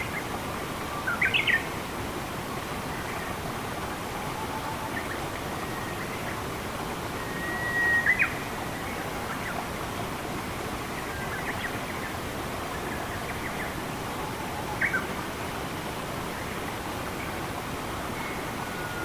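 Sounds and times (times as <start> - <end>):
flowing water rushing: 0.0 - 19.0
forest birds calling: 0.9 - 1.7, 7.2 - 9.6, 10.9 - 15.1.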